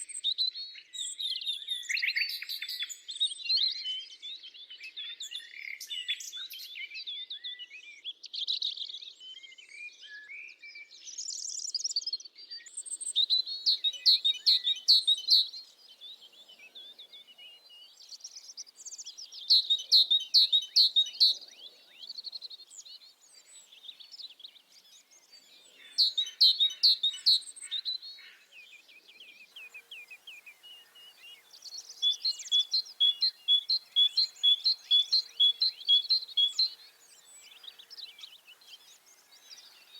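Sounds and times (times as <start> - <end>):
bird chirps and calls: 11.0 - 39.9.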